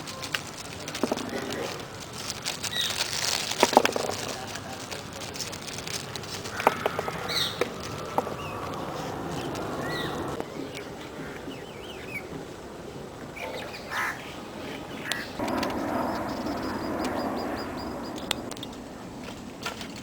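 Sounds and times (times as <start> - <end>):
birds chirping: 0.0 - 19.5
outdoor background noise: 0.0 - 20.0
sharp clicks: 15.1 - 18.8.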